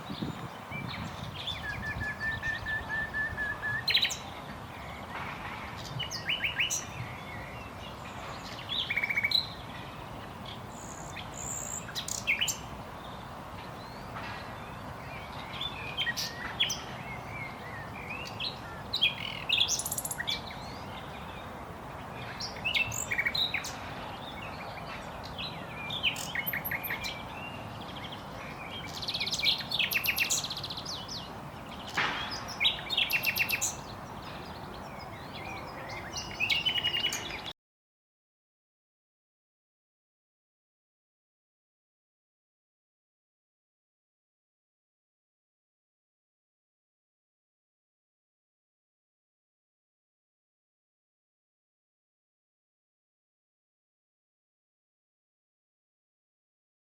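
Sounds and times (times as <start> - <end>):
nightingale singing: 0.0 - 5.1, 5.8 - 21.6, 22.2 - 37.5.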